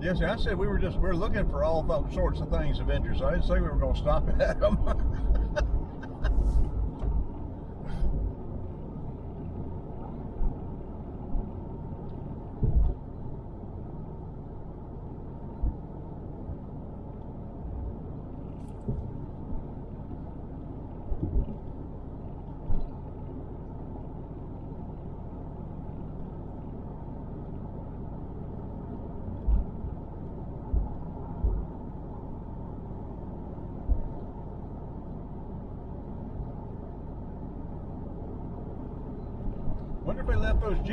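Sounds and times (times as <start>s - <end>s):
car interior road rumble: 0.0s - 40.9s
short low thumps: 12.6s - 13.0s, 30.6s - 31.7s.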